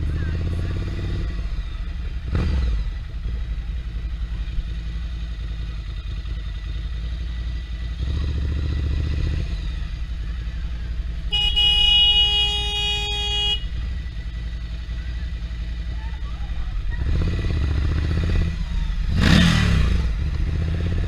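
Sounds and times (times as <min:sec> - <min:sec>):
motorcycle engine rumbling: 0:00.0 - 0:21.0
vehicle horn blast: 0:11.2 - 0:13.9.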